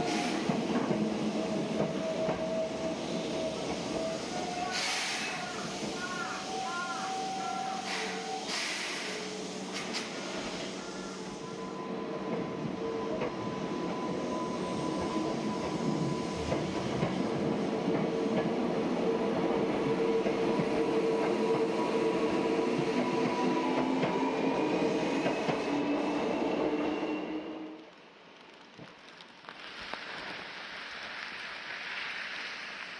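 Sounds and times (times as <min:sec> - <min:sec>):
train rumbling: 0:00.0 - 0:32.9.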